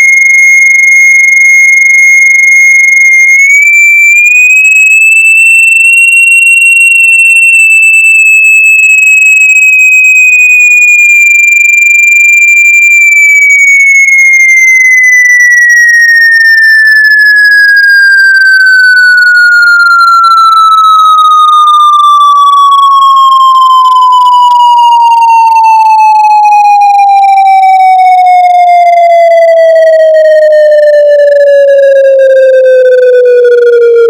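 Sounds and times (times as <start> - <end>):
loud electronic tone: 3.3 - 5.6, 19.9 - 34.0.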